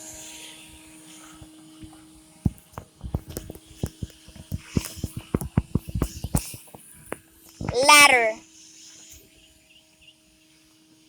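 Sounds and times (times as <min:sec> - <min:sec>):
irregular clicks and knocks: 0:02.5 - 0:07.8.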